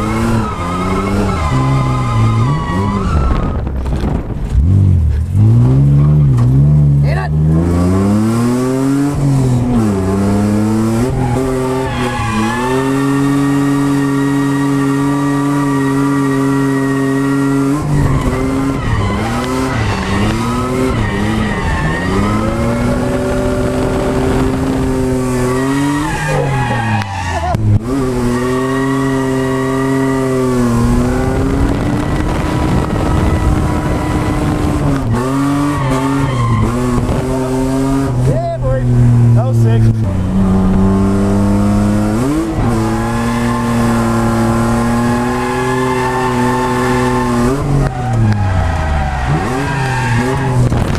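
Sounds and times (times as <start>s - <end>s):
car engine revving high: 0.0s - 50.9s
tyres squealing: 11.0s - 24.0s, 25.0s - 30.5s, 32.0s - 38.4s, 45.0s - 50.6s.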